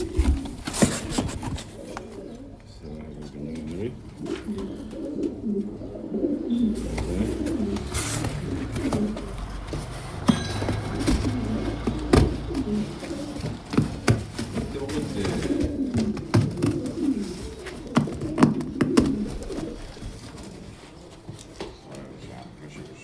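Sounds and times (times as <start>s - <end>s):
pigeons cooing: 0.0s - 10.3s, 11.2s - 21.4s
sharp knocks: 10.2s - 14.6s.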